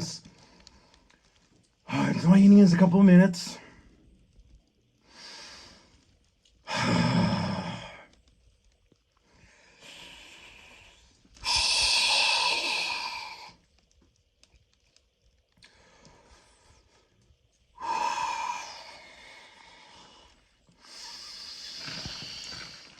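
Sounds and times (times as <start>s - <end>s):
man breathing deeply: 9.4s - 13.6s, 17.8s - 22.9s.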